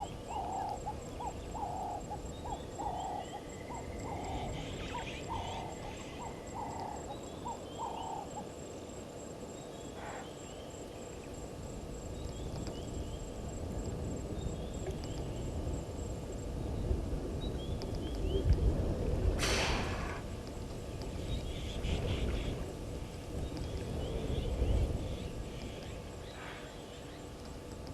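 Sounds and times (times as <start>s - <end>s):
bird repeating low call: 0.0s - 8.6s, 9.7s - 10.7s.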